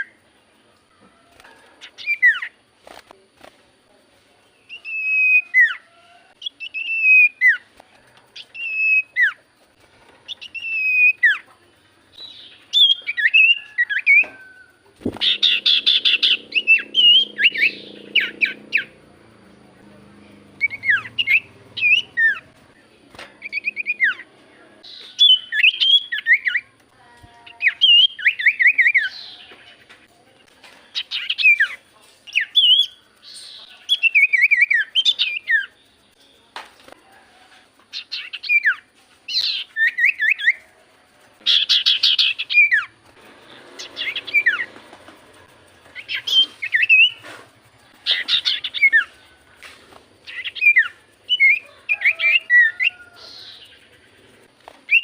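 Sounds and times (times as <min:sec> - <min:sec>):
bird singing whistled phrases: 0:04.6 - 0:05.8, 0:06.4 - 0:07.7, 0:10.3 - 0:11.5, 0:12.2 - 0:14.6, 0:15.2 - 0:18.9, 0:20.6 - 0:22.4, 0:24.9 - 0:26.6, 0:27.6 - 0:29.4, 0:31.0 - 0:35.7, 0:38.0 - 0:40.6, 0:46.0 - 0:47.2, 0:50.3 - 0:53.5.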